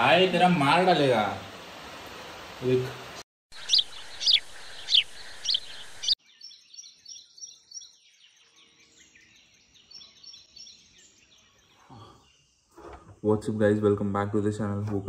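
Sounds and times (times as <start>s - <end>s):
loud downward-sliding bird chirps: 3.5s - 12.8s.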